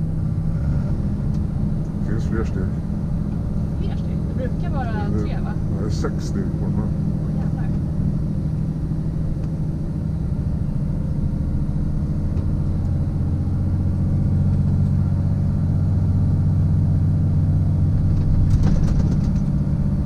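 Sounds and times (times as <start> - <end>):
truck engine droning: 0.0 - 20.0.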